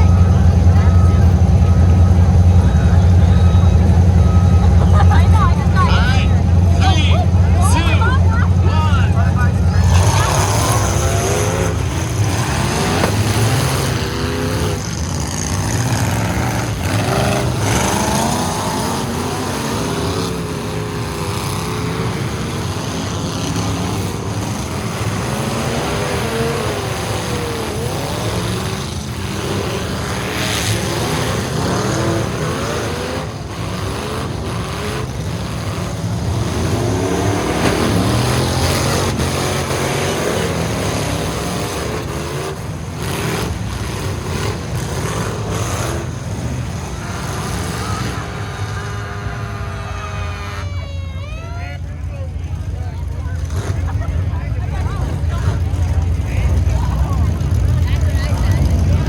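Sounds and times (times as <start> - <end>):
truck engines revving: 0.0 - 59.0.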